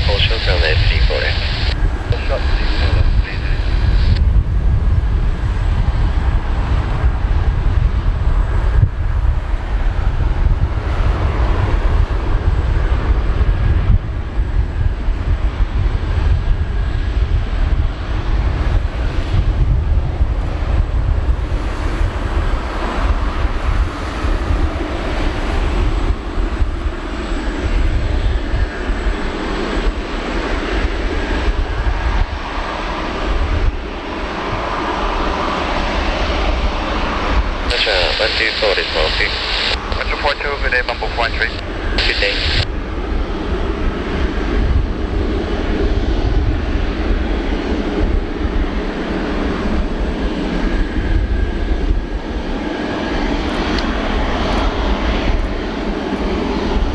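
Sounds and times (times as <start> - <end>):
jet engines roaring: 0.0 - 56.9.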